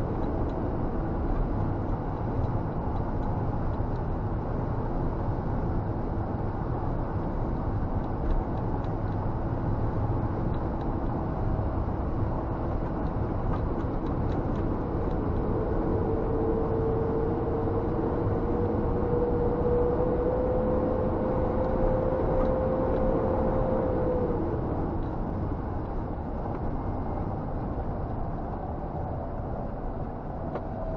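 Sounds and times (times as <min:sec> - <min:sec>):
truck engine and road noise: 0:00.0 - 0:30.9
whine rising in pitch: 0:13.9 - 0:25.7, 0:28.3 - 0:30.9.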